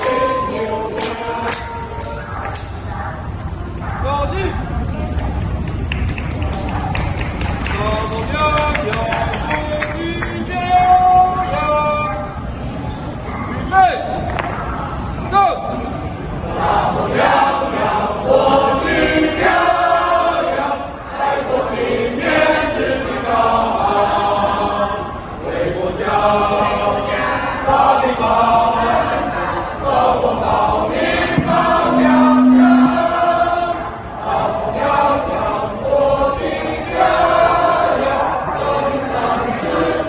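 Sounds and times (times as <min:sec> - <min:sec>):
choir singing: 0:00.0 - 0:02.7, 0:16.4 - 0:40.0.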